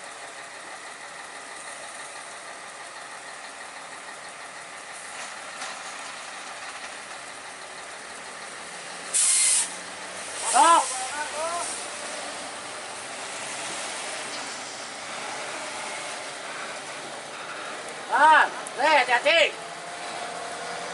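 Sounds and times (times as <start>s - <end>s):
heavy truck engine running: 0.0s - 20.9s
loud air hiss: 9.1s - 12.1s.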